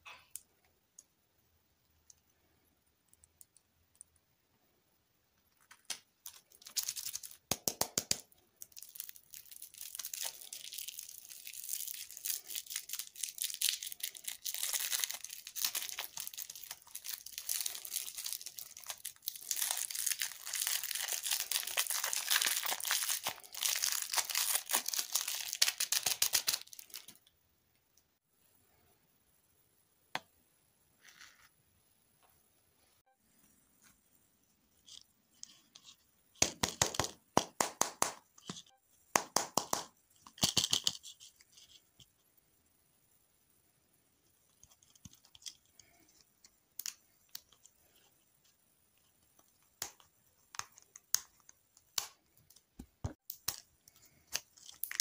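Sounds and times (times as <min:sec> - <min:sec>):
plastic wrapper crinkling: 0:05.6 - 0:07.9, 0:08.6 - 0:27.3, 0:53.3 - 0:55.0.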